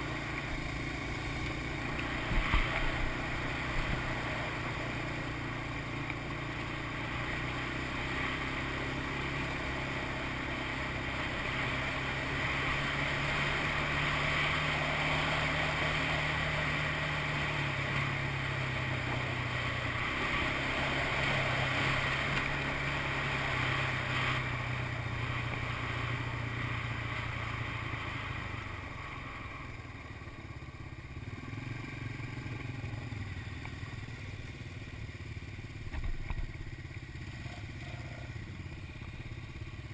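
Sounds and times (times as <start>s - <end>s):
atv engine running: 0.0s - 39.9s
wind and tyres hissing: 0.0s - 39.9s.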